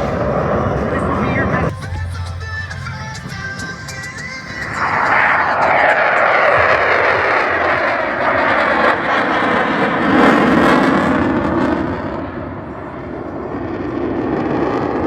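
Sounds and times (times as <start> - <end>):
aircraft engine flying past: 0.0 - 15.0.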